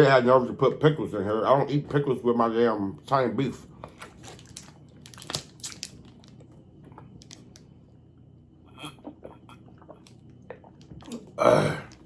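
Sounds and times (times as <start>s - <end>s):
person chewing: 8.7s - 12.0s.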